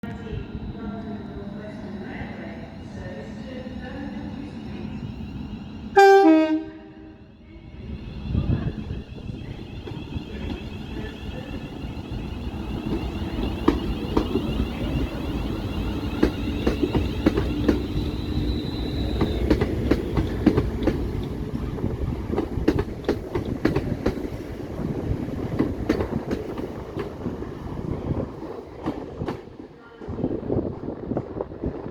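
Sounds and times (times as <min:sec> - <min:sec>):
train wheels clattering over rail joints: 0:12.5 - 0:24.6, 0:25.3 - 0:27.4.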